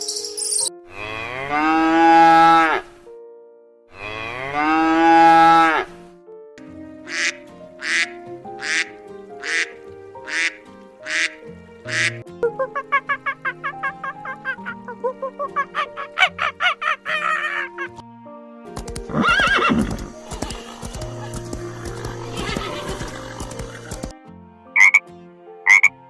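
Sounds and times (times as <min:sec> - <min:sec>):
light background music: 0:00.0 - 0:26.0
cow mooing: 0:00.9 - 0:02.9, 0:03.9 - 0:05.9
duck quacks: 0:07.1 - 0:12.2, 0:24.8 - 0:25.0, 0:25.7 - 0:25.9
chicken clucking: 0:20.2 - 0:24.1.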